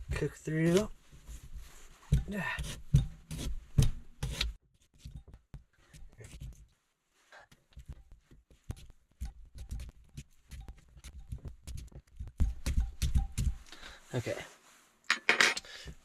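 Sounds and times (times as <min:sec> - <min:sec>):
fork tapping and rubbing: 0:08.6 - 0:13.7.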